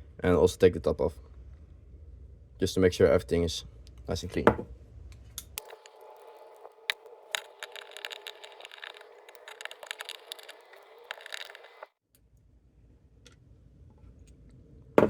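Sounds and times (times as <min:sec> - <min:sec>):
faint steady hiss: 0:05.3 - 0:11.9
hand tools clicking and scraping: 0:05.6 - 0:11.9.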